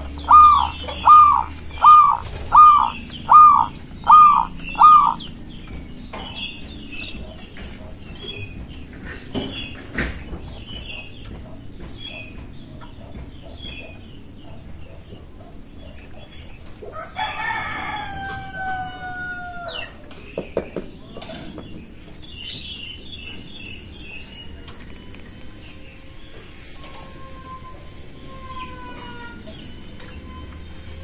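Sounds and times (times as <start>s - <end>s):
small birds chirping: 0.0s - 18.0s, 19.5s - 31.0s
rooster crowing: 16.9s - 19.9s.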